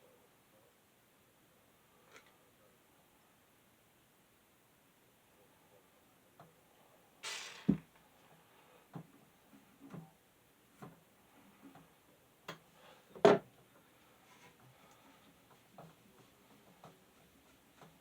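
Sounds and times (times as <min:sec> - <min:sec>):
short scraping hiss: 0:07.2 - 0:07.8.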